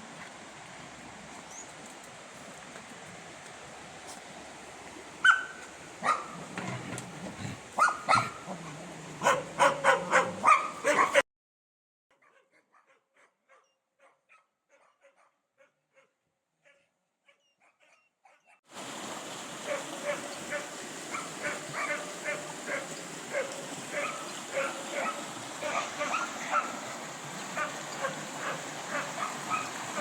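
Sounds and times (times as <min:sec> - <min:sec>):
dog yelping and barking: 0:05.2 - 0:06.4, 0:07.8 - 0:08.6, 0:09.2 - 0:11.2, 0:12.2 - 0:18.6, 0:21.1 - 0:26.8, 0:27.6 - 0:30.0
steady hiss: 0:18.8 - 0:29.2.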